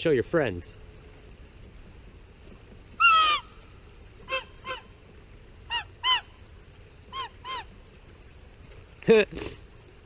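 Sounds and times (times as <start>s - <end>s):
goose-like honking: 3.0s - 3.6s, 4.2s - 5.0s, 5.7s - 6.4s, 7.1s - 7.7s.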